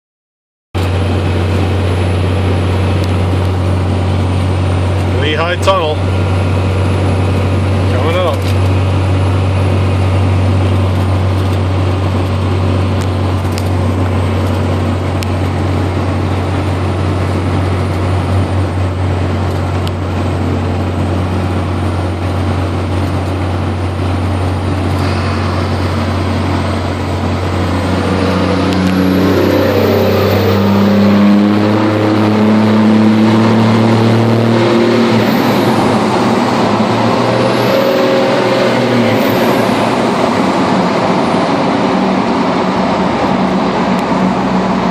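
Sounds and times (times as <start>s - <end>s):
diesel engine drone: 0.8s - 44.9s.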